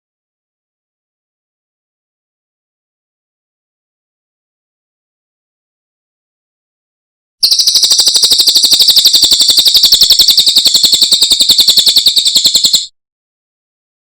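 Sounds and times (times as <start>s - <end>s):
bird singing rapid trill: 7.4s - 12.9s.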